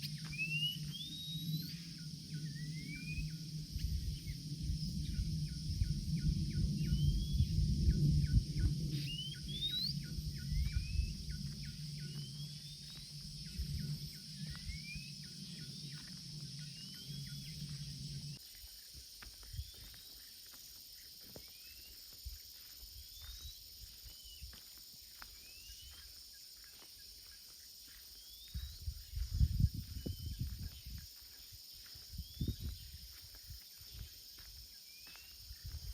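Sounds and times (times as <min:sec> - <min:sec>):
insects droning: 0:00.0 - 0:35.9
low rumbles: 0:03.3 - 0:18.4.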